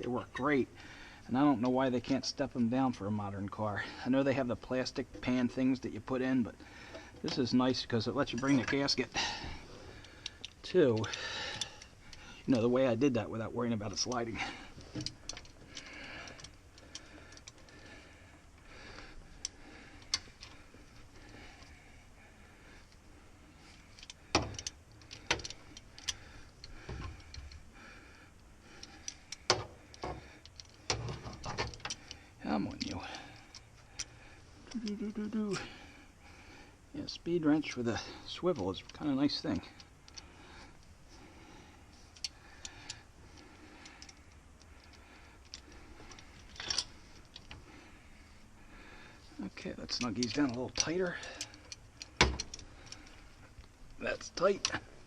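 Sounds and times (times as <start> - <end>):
metallic clicks of hand tools: 49.9 - 54.8.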